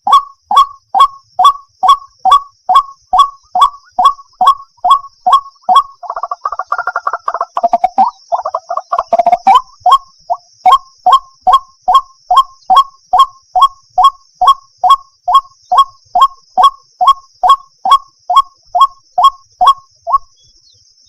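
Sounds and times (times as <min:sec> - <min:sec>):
waterhen calling: 0:00.0 - 0:10.8.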